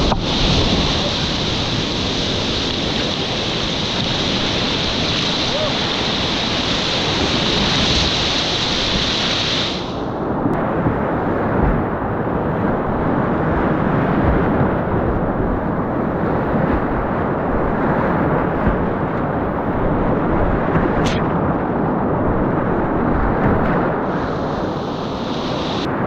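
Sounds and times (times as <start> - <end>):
river whitewater rushing: 0.0 - 10.0, 24.0 - 25.9.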